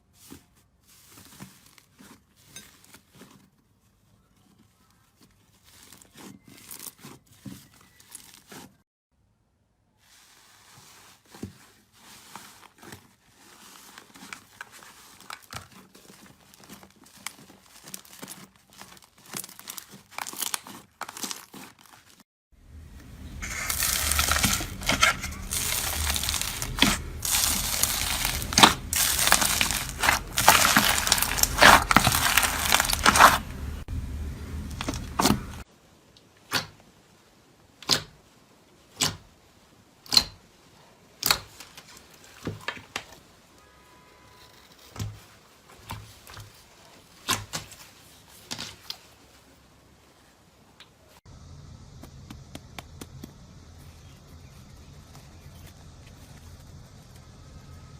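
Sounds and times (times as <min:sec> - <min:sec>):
slime crackling and crunching: 0:05.1 - 0:08.8, 0:12.0 - 0:22.2, 0:23.0 - 0:33.9, 0:34.5 - 0:35.7.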